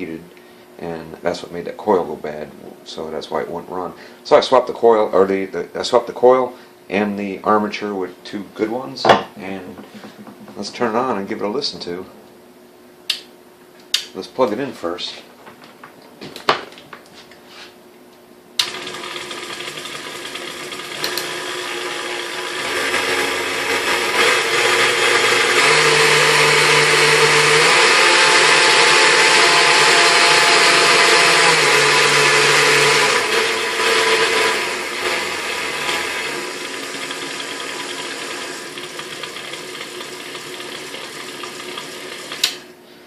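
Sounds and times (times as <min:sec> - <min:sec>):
stand mixer motor running: 0:18.6 - 0:42.5.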